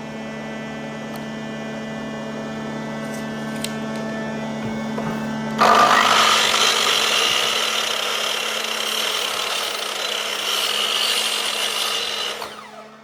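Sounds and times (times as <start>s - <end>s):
motor spinning down whine: 0.4s - 13.0s
power tool running: 4.5s - 13.0s.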